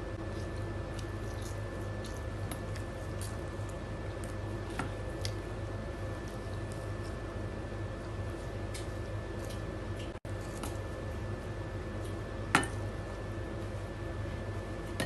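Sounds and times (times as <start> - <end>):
steady low hum: 0.0 - 15.0
person chewing fried food: 0.2 - 4.4.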